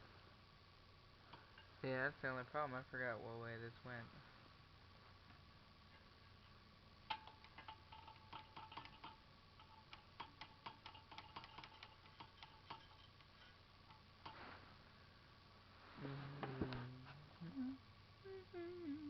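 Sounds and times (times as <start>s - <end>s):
metal parts clicking and tapping: 7.1s - 14.4s.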